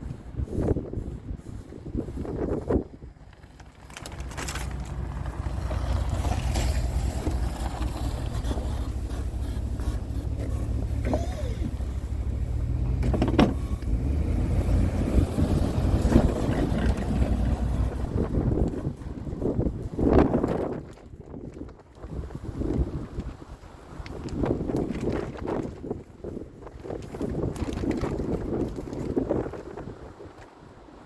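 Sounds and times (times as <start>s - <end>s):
truck engine rumbling: 0.0s - 20.9s.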